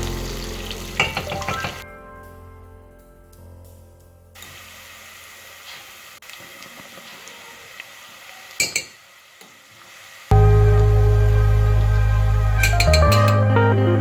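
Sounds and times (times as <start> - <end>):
dishes and utensils clinking: 0.9 - 1.8, 8.6 - 9.0, 12.6 - 13.4.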